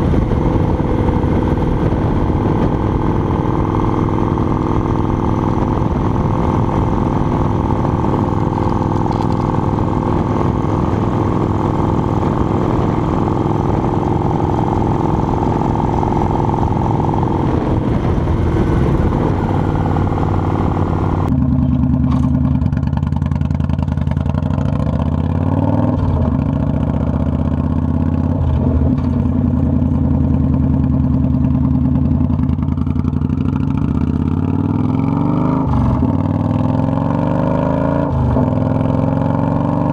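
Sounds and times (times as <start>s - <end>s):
rushing wind noise: 0.0s - 21.4s
motorcycle engine running: 0.0s - 39.9s.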